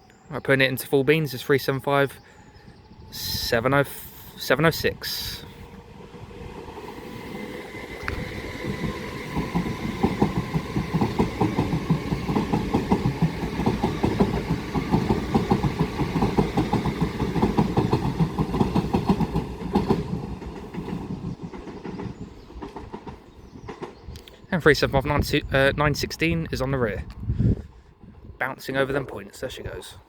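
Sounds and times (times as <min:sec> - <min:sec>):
electric train traction whine: 0:02.4 - 0:21.2
wheel clatter over rail joints: 0:05.1 - 0:24.1.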